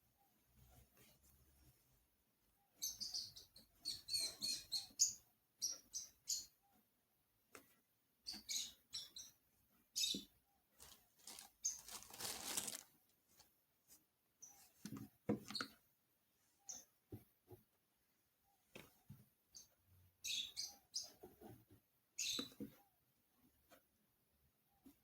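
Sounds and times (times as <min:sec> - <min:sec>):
crisp crackling and rustling: 0:10.8 - 0:13.5.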